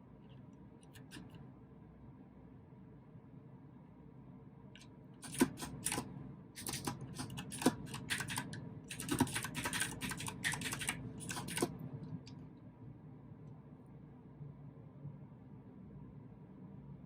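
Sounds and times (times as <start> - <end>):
mechanical keyboard typing: 5.2 - 11.8.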